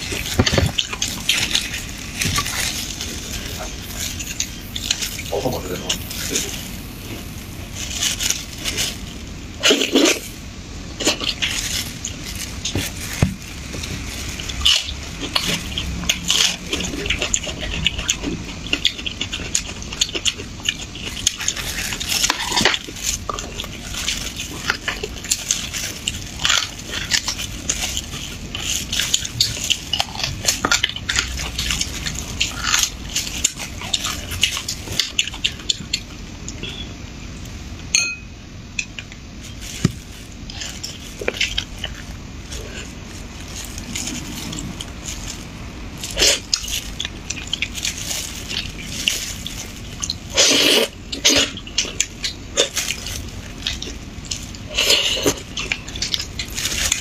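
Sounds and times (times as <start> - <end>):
chewing and slurping: 0.0 - 37.6, 38.8 - 57.0.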